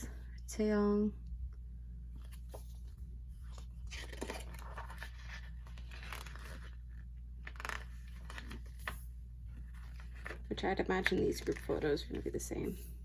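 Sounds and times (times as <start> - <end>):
packaging rustling and crinkling: 3.5 - 9.0.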